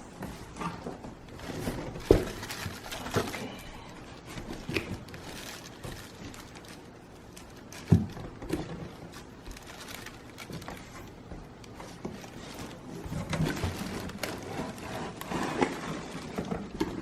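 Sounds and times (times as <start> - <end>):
boxed heater knocks and bumps: 0.2 - 3.4, 7.7 - 9.6.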